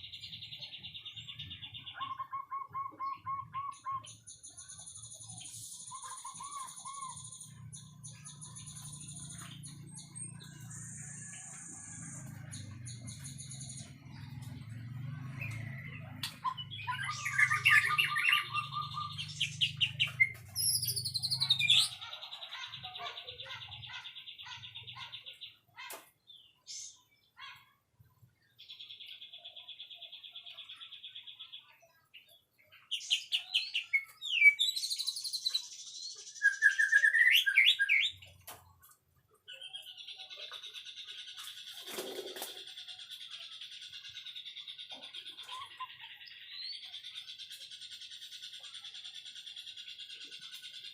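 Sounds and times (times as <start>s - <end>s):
bird singing whistled trills: 0.0s - 13.9s, 15.4s - 22.0s, 32.9s - 38.2s, 42.7s - 50.9s.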